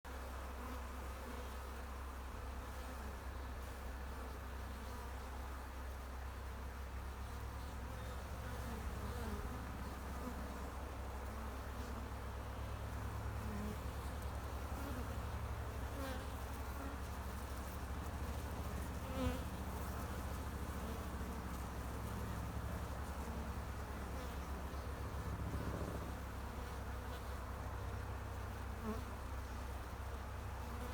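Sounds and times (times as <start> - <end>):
bee swarm buzzing: 7.6 - 30.9.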